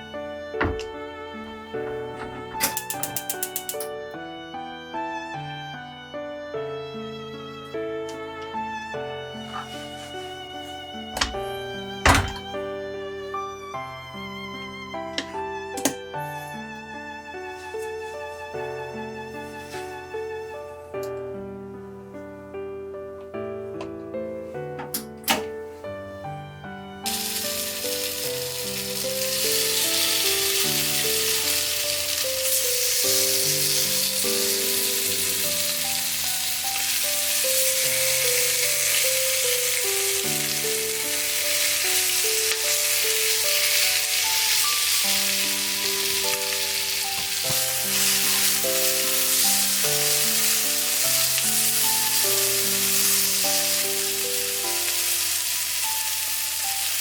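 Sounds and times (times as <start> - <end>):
instrumental background music: 0.0 - 57.0
food sizzling in a pan: 27.0 - 57.0.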